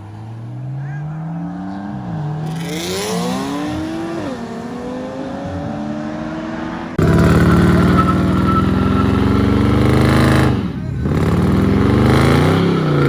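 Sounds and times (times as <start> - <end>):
car engine accelerating: 0.0 - 13.0
loud engine sound: 7.0 - 13.0.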